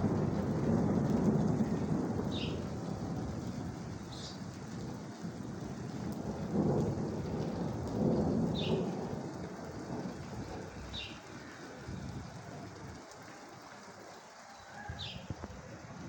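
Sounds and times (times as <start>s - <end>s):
rolling thunder: 0.0s - 14.0s
steady rain: 0.0s - 16.0s.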